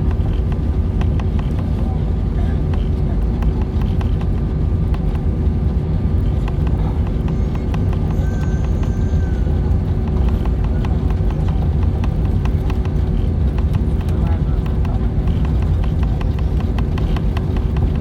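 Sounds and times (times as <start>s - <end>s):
airliner cabin rumble: 0.0s - 18.0s
faint whine: 0.0s - 18.0s.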